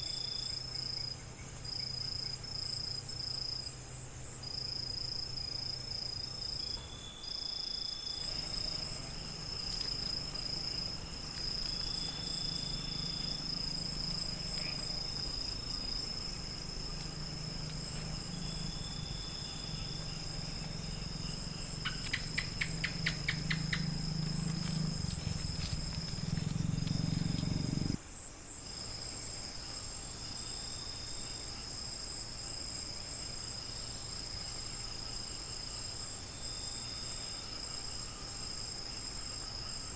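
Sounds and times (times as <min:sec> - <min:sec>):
crickets trilling: 0:00.0 - 0:39.9
low hum: 0:00.2 - 0:28.0
run of clicks: 0:21.9 - 0:27.5.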